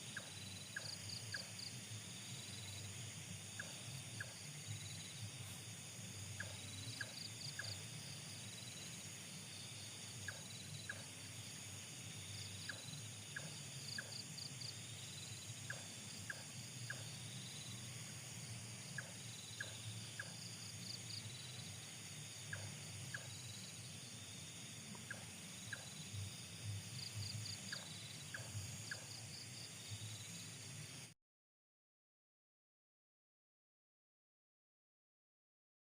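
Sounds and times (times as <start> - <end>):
crickets chirping: 0.0 - 31.2.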